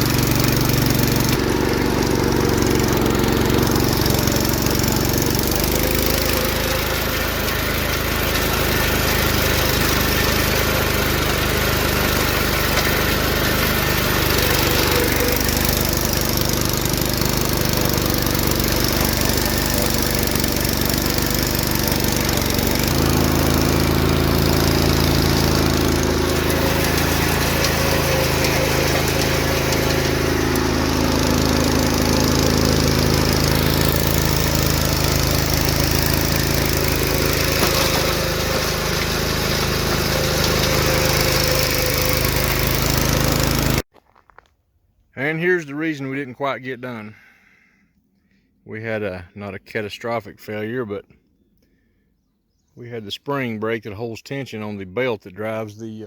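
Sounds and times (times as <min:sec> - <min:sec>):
garden tractor engine under load: 0:00.0 - 0:44.3.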